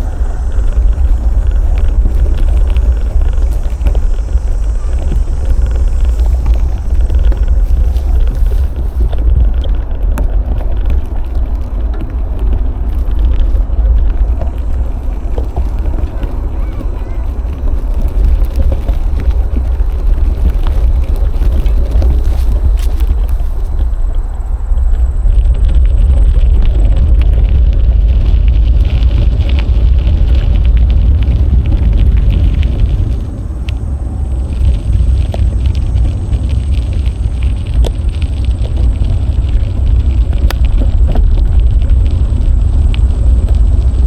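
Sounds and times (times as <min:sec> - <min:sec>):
light ticks and crackles: 0:00.0 - 0:44.0
wind buffeting microphone: 0:00.0 - 0:44.0
bicycle clicks and knocks: 0:00.1 - 0:33.9.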